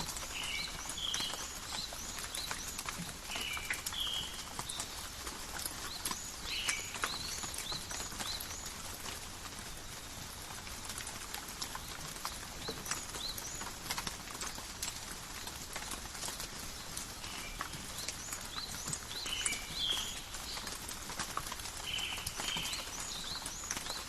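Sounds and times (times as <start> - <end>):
rain pattering on leaves: 0.0 - 24.0.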